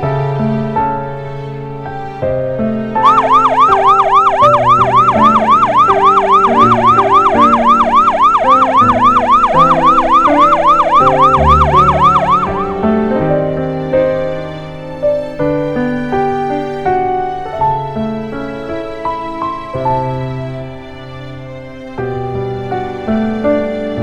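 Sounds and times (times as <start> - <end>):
piano background music: 0.0 - 24.0
fast yelping siren: 3.0 - 12.8.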